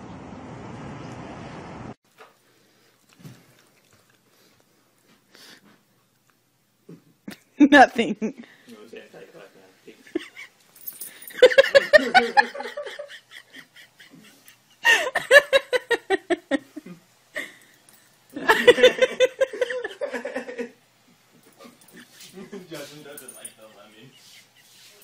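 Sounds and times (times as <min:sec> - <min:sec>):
person laughing: 0:10.0 - 0:10.5, 0:11.3 - 0:17.6, 0:18.4 - 0:20.8.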